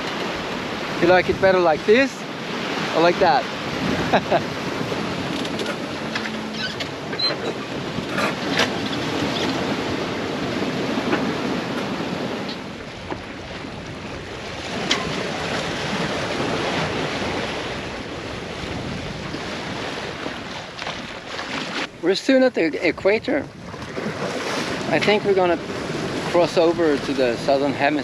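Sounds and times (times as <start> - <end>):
water splashing along boat hull: 0.0 - 28.0
wind on microphone: 0.0 - 28.0.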